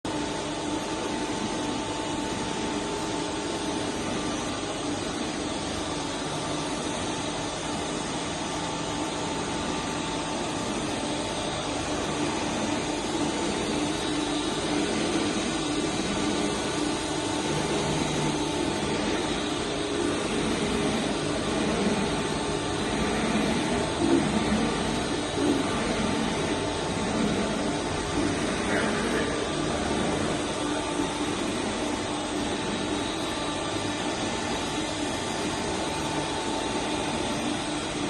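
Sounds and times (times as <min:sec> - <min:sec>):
surface grinder whirring: 0:12.0 - 0:37.5.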